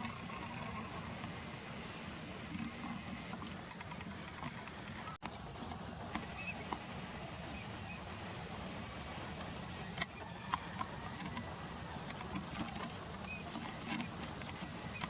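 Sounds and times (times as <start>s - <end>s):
distant traffic: 0.0s - 15.0s
river rumble: 0.0s - 15.0s
sharp clicks: 10.0s - 15.0s.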